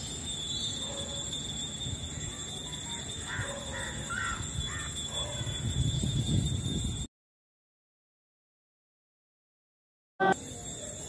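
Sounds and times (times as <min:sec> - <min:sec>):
bird calling: 0:02.2 - 0:05.6.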